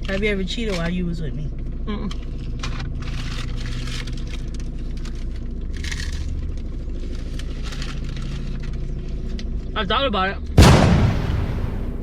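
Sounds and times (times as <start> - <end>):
steady low hum: 10.4 - 12.0.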